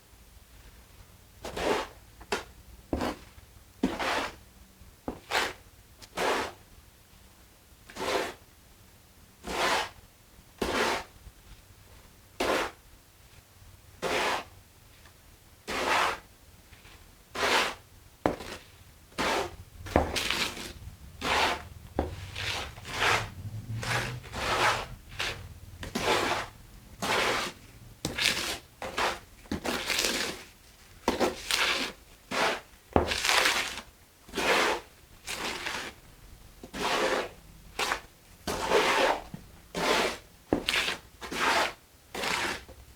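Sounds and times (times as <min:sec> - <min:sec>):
tool scraping through mortar: 0:09.4 - 0:10.0, 0:14.0 - 0:14.5, 0:15.7 - 0:16.2, 0:17.4 - 0:36.0, 0:36.6 - 0:42.8.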